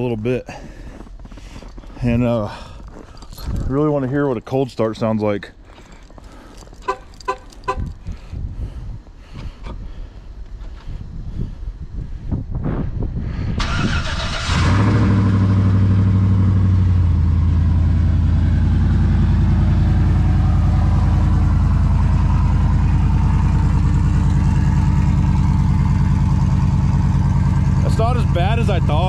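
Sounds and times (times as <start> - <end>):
truck engine idling: 14.3 - 29.0.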